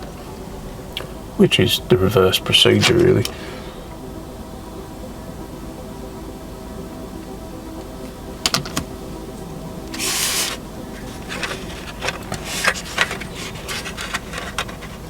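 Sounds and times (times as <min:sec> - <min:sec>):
plastic scraping: 0:09.9 - 0:15.0
plastic model parts clicking: 0:11.3 - 0:15.0.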